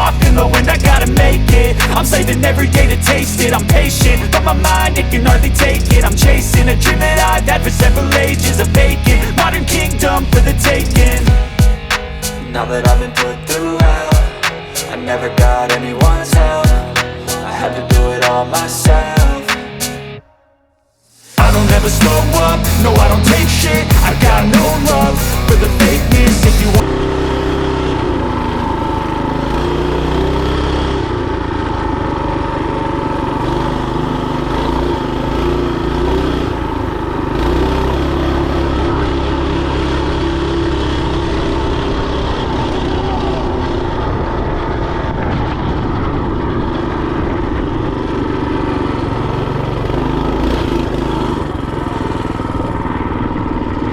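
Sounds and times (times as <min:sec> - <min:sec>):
mini bike engine revving: 0:46.7 - 0:53.9.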